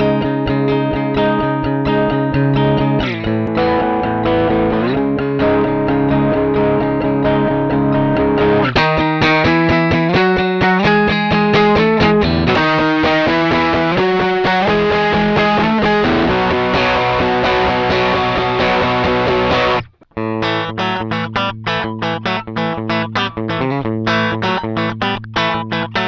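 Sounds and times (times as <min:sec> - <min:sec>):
distorted electric guitar chords: 0:00.0 - 0:26.0.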